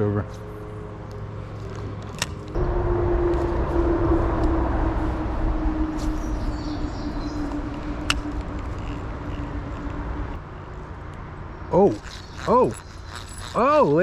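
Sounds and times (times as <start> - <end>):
fishing reel whirring: 7.4 - 10.4, 11.9 - 14.0.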